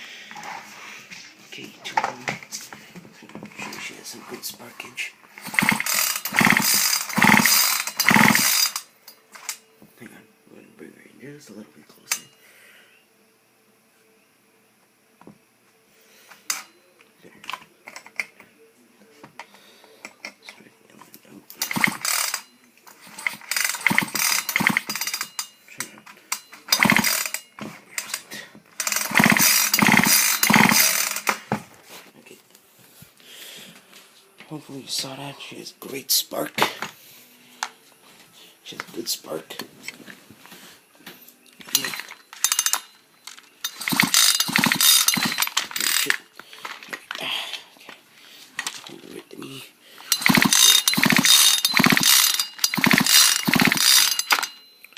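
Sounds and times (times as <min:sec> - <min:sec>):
chainsaw recoil starter rattling: 0:05.3 - 0:09.6, 0:21.6 - 0:22.4, 0:23.0 - 0:25.5, 0:26.3 - 0:28.2, 0:28.8 - 0:31.5, 0:41.7 - 0:46.9, 0:50.0 - 0:54.6
engine cranking with ratcheting clatter: 0:05.3 - 0:09.6, 0:21.6 - 0:25.5, 0:26.3 - 0:28.2, 0:28.8 - 0:31.4, 0:41.7 - 0:42.9, 0:43.6 - 0:46.8, 0:50.0 - 0:54.6.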